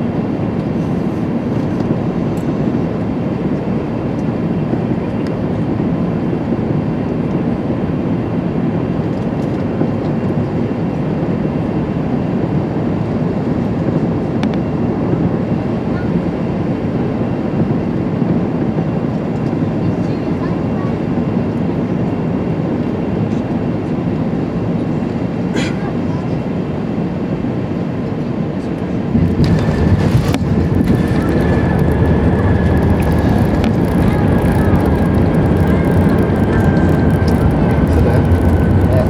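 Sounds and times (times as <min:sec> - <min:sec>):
airliner engine roar: 0:00.0 - 0:39.0
air rushing along fuselage: 0:26.7 - 0:39.0.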